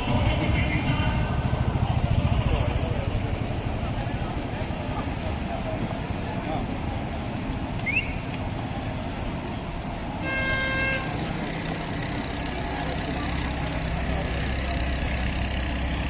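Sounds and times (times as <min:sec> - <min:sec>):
low engine hum: 0:00.0 - 0:16.0
outdoor background noise: 0:00.0 - 0:16.0
short horn toot: 0:10.2 - 0:11.2.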